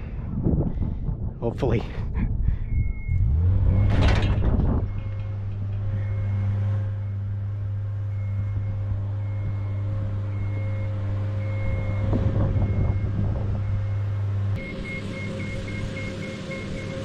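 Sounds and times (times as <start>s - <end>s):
low motor hum: 0.0s - 17.0s
motion alarm beeping: 2.6s - 17.0s
rattling: 2.7s - 10.8s.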